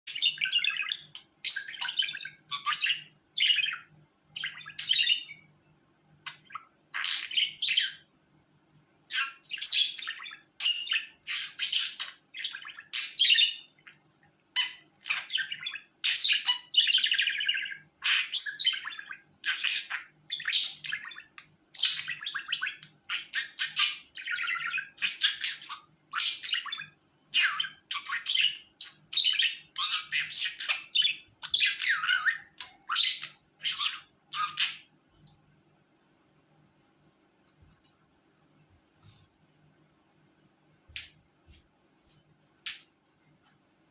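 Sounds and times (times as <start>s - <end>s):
budgerigar chirping and warbling: 0.1s - 5.4s, 6.2s - 8.1s, 9.1s - 34.9s.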